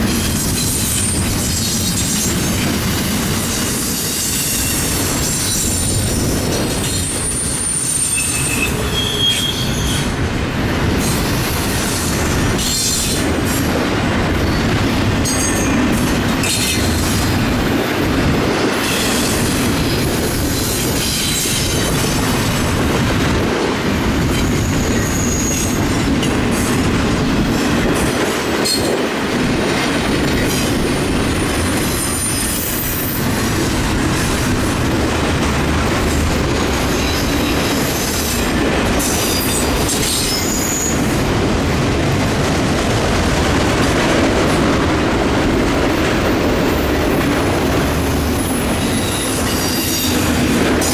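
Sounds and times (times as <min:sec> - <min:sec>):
freight train rumbling: 0:00.0 - 0:50.9
train wheels clacking: 0:00.0 - 0:50.9
high-pitched wheel squeals: 0:06.9 - 0:10.1, 0:24.8 - 0:25.8.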